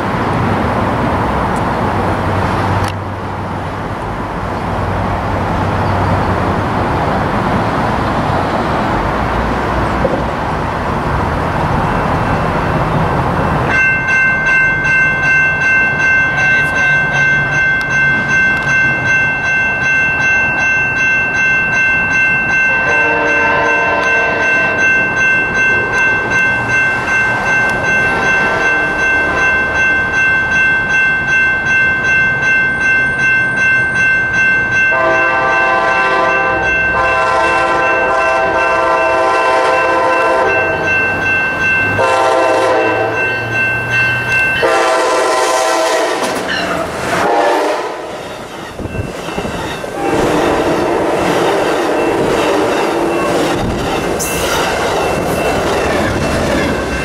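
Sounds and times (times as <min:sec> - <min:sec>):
crossing bell ringing: 0:11.6 - 0:57.0
locomotive horn blasts: 0:22.7 - 0:24.8, 0:34.9 - 0:41.0, 0:42.0 - 0:43.3, 0:44.6 - 0:46.4, 0:47.2 - 0:48.1, 0:50.0 - 0:51.3
train wheels clicking over joints: 0:46.1 - 0:47.2, 0:48.1 - 0:57.0.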